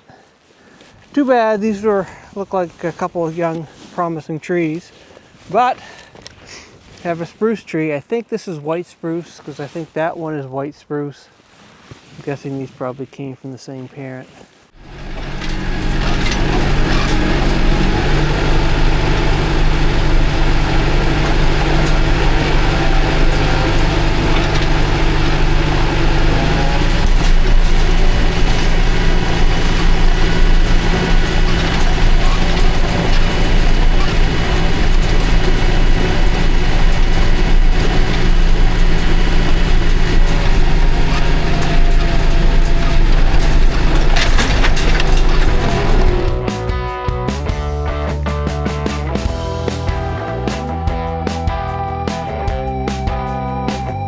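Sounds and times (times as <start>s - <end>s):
mechanical rattling and clanking: 14.8s - 46.5s
tractor engine running: 14.8s - 46.8s.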